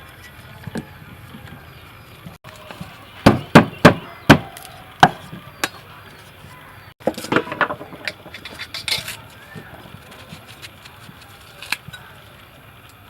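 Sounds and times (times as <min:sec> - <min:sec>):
knife chopping on wooden board: 0:03.3 - 0:05.8.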